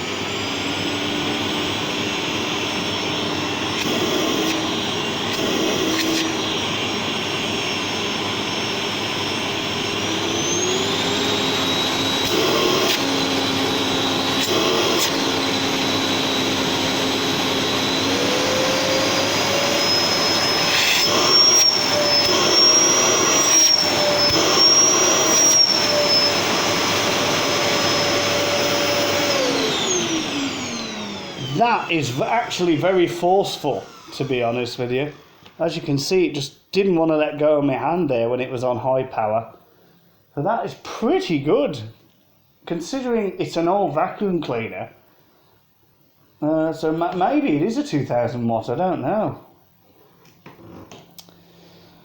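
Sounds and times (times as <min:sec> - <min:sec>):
vacuum cleaner motor whine: 0:00.0 - 0:36.1.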